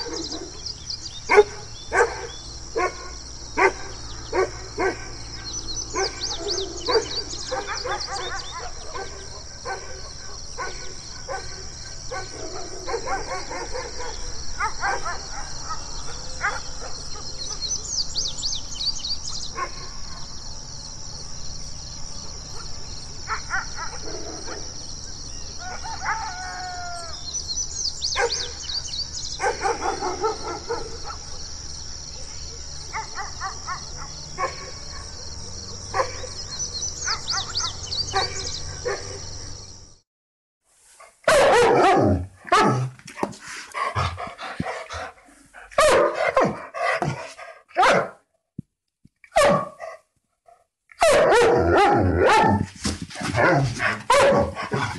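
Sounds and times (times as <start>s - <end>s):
dogs barking: 0.0s - 17.8s, 22.5s - 24.8s, 28.1s - 31.4s, 32.9s - 39.3s, 41.2s - 48.2s, 49.3s - 50.0s, 50.9s - 54.9s
birds chirping: 0.0s - 40.0s, 42.6s - 48.0s.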